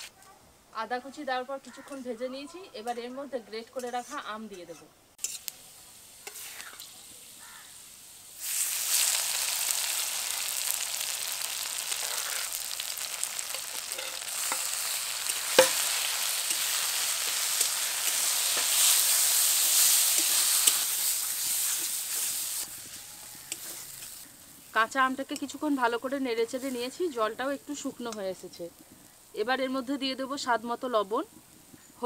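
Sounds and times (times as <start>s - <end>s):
loud sizzle in hot oil: 5.2s - 31.3s
sharp knock against pan: 15.5s - 15.8s.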